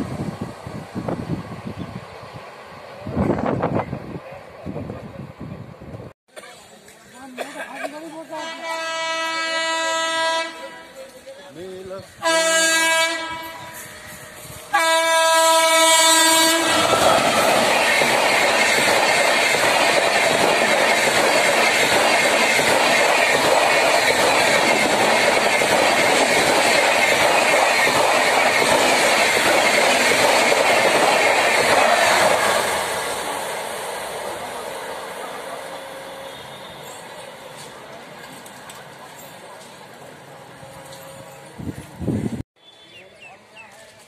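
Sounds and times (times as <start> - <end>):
train horn blast: 8.4 - 11.0, 12.2 - 17.3, 35.7 - 37.0
train wheels clickety-clack: 16.5 - 32.7.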